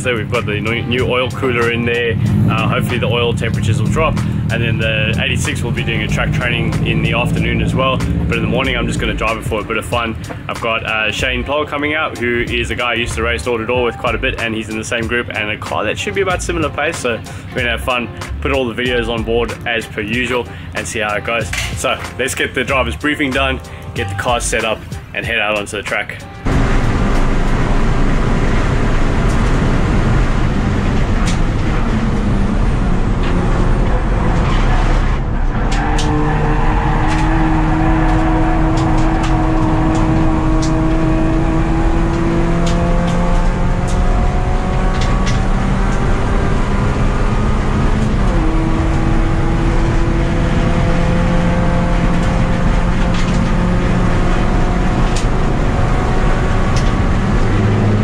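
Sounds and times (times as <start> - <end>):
race car engine revving: 0.0 - 25.5, 26.2 - 58.0
sharp clicks and knocks: 38.0 - 41.0, 52.1 - 54.0, 56.6 - 57.6.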